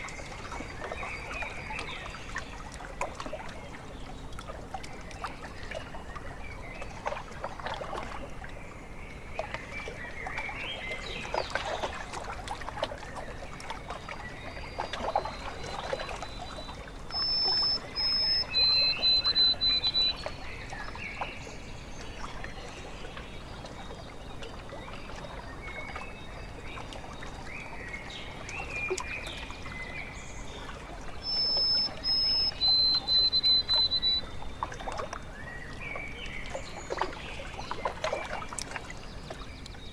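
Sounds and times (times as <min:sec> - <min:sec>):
small waves lapping: 0:00.0 - 0:39.9
songbird whistling: 0:17.1 - 0:20.3, 0:31.2 - 0:34.3.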